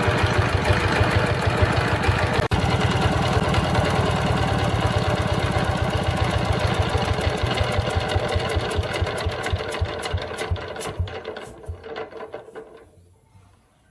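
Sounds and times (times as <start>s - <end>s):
diesel engine knocking: 0.0s - 12.4s.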